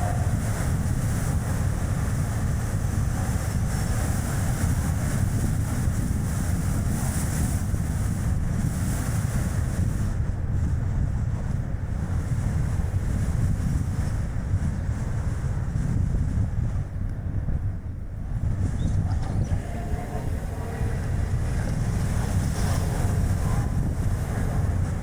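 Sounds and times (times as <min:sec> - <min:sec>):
wind buffeting microphone: 0:00.0 - 0:25.0
car tyre and road noise: 0:18.1 - 0:25.0.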